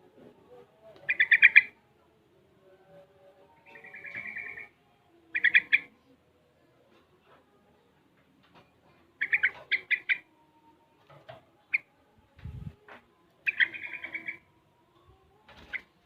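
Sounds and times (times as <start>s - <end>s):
bird chirping: 1.0s - 1.8s, 3.6s - 4.7s, 5.3s - 6.2s, 9.1s - 10.4s, 13.4s - 14.4s.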